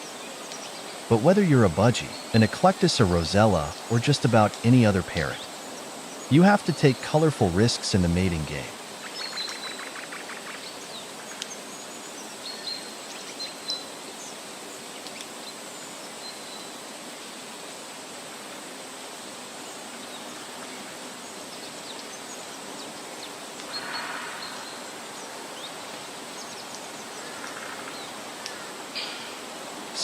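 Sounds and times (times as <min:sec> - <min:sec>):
rapid bird chatter: 0:00.0 - 0:13.8, 0:20.1 - 0:30.0
outdoor bush ambience hiss: 0:00.0 - 0:30.0.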